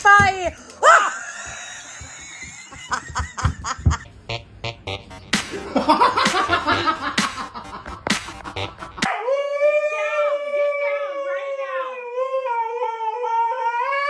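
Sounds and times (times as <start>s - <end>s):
people laughing: 0.7s - 4.1s, 5.5s - 9.1s
music: 4.3s - 9.1s
sharp clicks and slaps: 7.1s - 9.0s.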